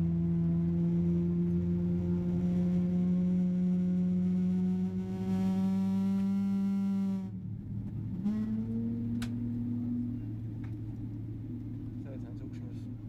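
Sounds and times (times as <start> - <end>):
musical drone: 0.0 - 13.0
faint whine: 7.0 - 13.0.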